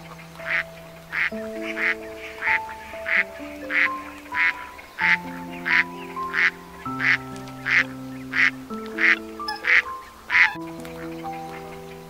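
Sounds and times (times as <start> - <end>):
background music with held notes: 0.0 - 12.0
duck quacking: 0.4 - 10.7.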